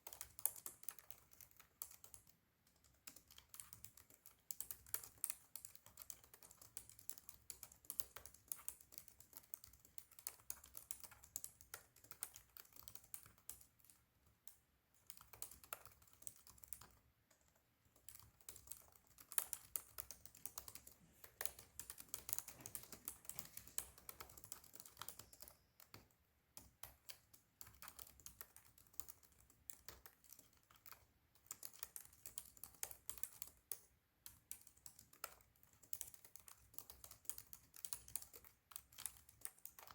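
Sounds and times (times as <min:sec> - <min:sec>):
fast typing on laptop keyboard: 0:00.0 - 0:39.9.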